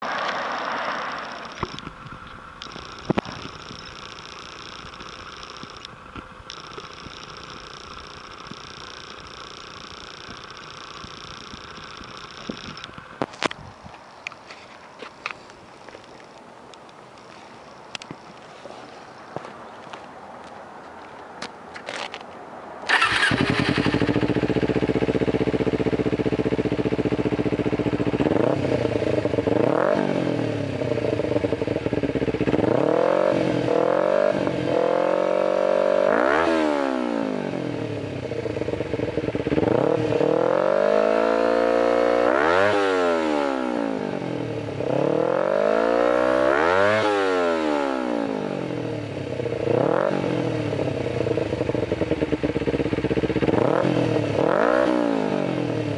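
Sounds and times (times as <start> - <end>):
motorcycle engine revving: 0.0 - 13.3, 22.9 - 55.9
motorcycle engine idling: 0.7 - 13.5, 22.9 - 33.9, 37.4 - 42.7, 48.5 - 55.9.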